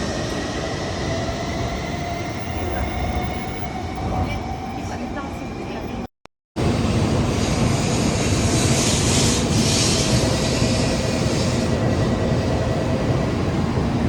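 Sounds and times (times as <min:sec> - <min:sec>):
train rail rumble with hiss: 0:06.6 - 0:14.0.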